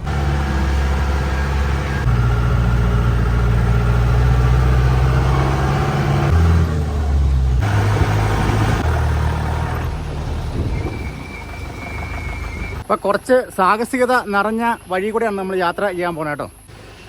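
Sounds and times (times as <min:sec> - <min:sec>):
jeep engine running: 0:00.0 - 0:13.0.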